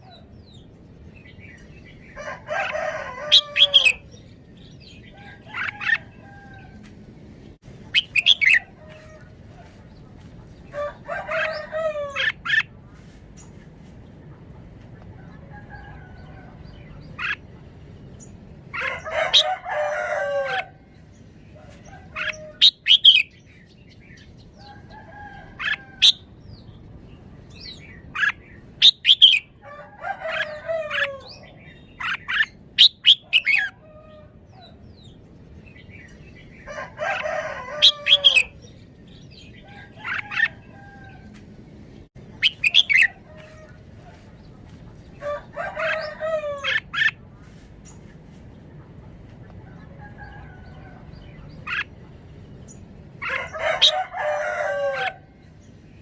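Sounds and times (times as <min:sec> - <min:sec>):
rooster crowing: 0:02.2 - 0:04.1, 0:10.7 - 0:12.4, 0:18.8 - 0:20.8, 0:29.6 - 0:31.4, 0:36.7 - 0:38.6, 0:45.2 - 0:47.0, 0:53.2 - 0:55.4.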